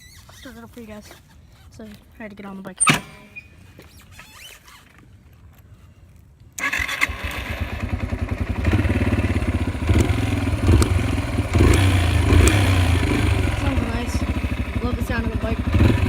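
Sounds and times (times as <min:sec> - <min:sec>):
dirt bike engine running: 0:06.6 - 0:16.0
dirt bike engine starting: 0:06.6 - 0:16.0.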